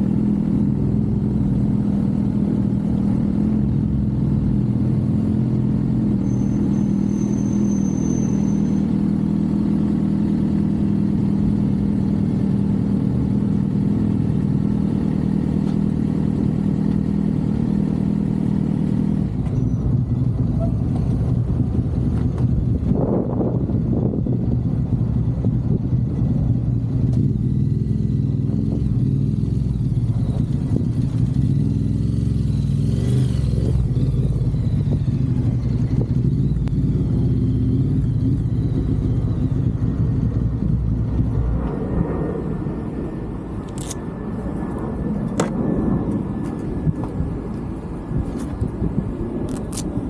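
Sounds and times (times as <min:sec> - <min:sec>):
motorcycle engine running: 0:00.0 - 0:43.0
sharp clicks: 0:49.5 - 0:50.0.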